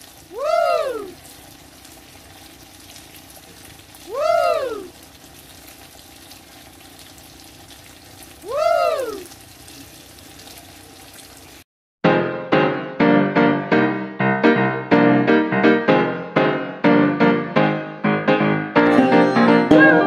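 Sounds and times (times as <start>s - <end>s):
sausages sizzling in a frying pan: 0.0s - 11.6s
loud pitched call: 0.3s - 1.2s, 4.0s - 4.9s, 8.4s - 9.3s.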